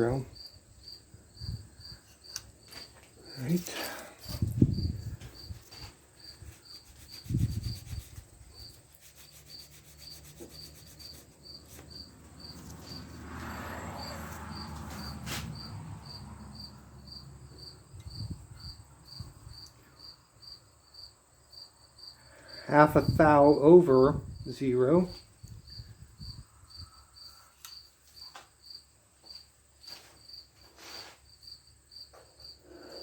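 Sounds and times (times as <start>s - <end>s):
cricket chirping: 0.0s - 33.0s
rubbing: 5.2s - 13.0s.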